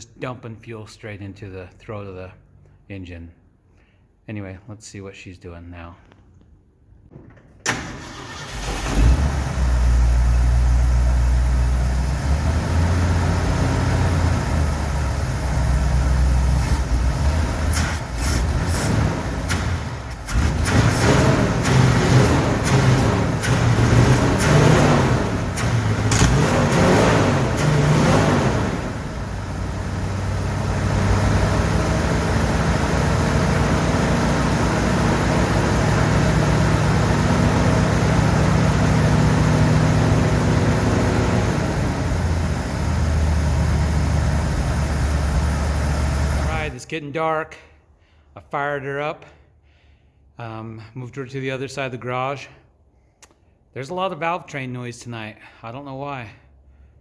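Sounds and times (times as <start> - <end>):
truck engine starting and revving: 7.6 - 46.8.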